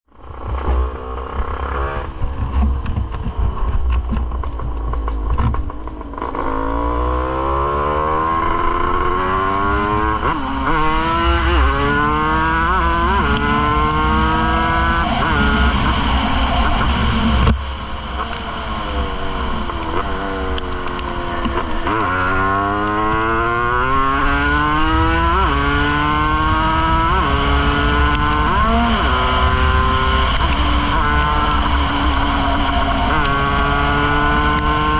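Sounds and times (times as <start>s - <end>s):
two-stroke motorcycle revving: 0.1s - 34.9s
wind rumble on microphone: 0.1s - 34.9s.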